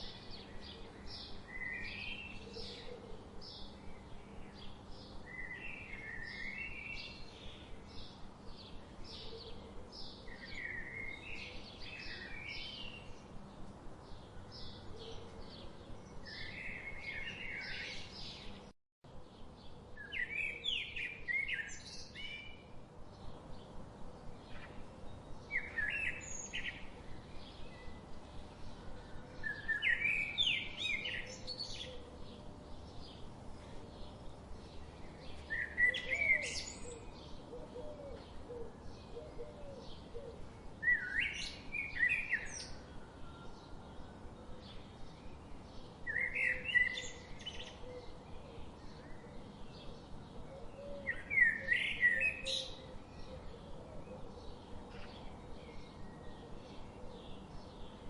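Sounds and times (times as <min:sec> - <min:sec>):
birds chirping and singing: 0:19.4 - 0:58.0.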